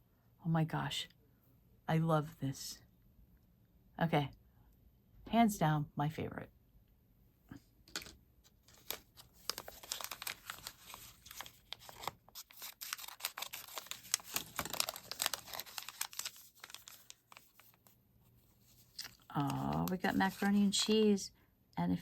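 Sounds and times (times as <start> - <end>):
plastic wrapping tearing and crinkling: 8.6 - 17.8, 18.8 - 20.6.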